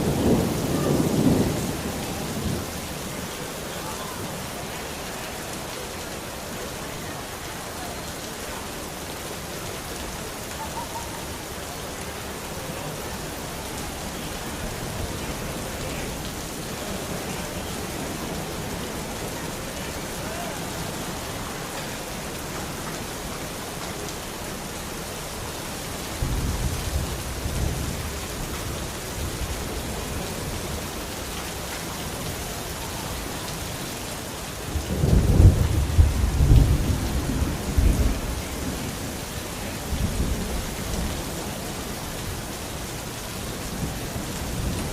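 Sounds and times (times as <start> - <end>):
thunder rumbling: 0.0 - 3.4, 26.1 - 30.9, 34.7 - 42.5
steady rain falling: 0.0 - 44.9.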